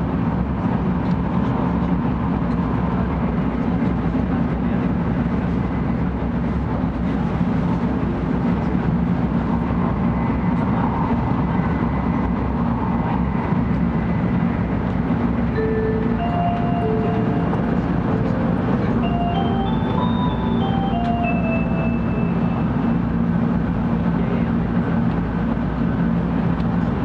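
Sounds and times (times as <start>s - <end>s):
electronic chime tune: 15.6s - 23.0s.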